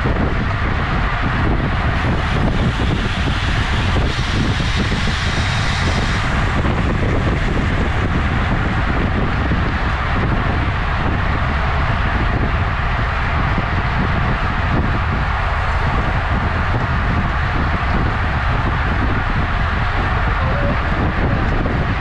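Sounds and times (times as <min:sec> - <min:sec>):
road rumble: 0:00.0 - 0:22.0
wind buffeting microphone: 0:00.0 - 0:22.0.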